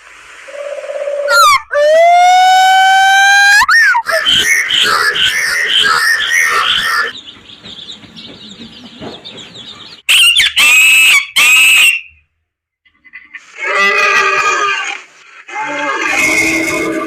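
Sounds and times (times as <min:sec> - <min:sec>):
farmyard birds: 0:04.0 - 0:12.1
rooster crowing: 0:15.6 - 0:17.0.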